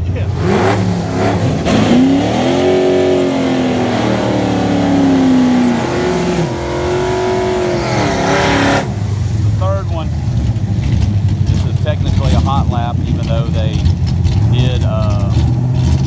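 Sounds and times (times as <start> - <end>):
drag car engine at full throttle: 0.0 - 16.0.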